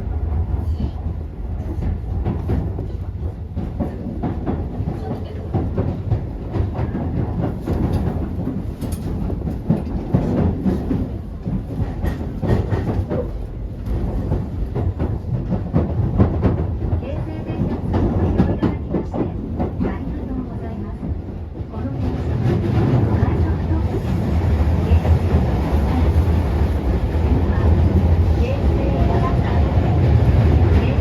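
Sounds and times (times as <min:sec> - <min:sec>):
train low rumble: 0:00.0 - 0:31.0
wheels clicking over rail joints: 0:01.8 - 0:24.2.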